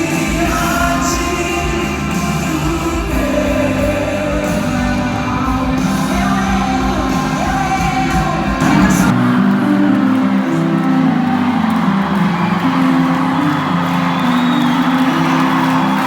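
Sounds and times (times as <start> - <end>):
deep bass: 0.0 - 9.4
people singing: 0.0 - 12.8
band playing worship music: 0.0 - 16.0.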